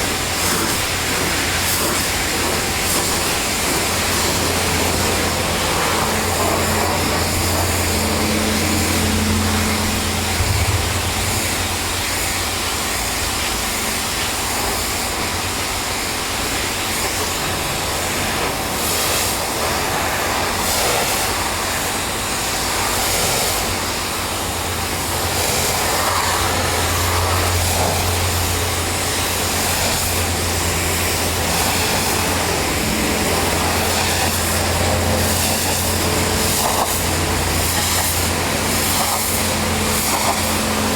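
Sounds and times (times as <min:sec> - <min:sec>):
high-pressure water spray hissing: 0:00.0 - 0:40.9
pressure washer engine drone: 0:00.0 - 0:40.9.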